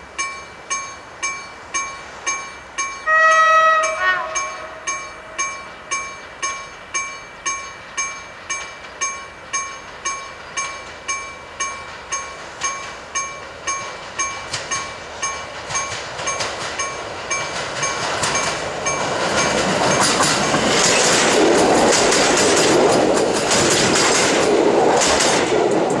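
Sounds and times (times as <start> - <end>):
train passing by: 0.0 - 26.0
wheels clicking over rail joints: 0.0 - 26.0
ringing ding: 0.2 - 17.5.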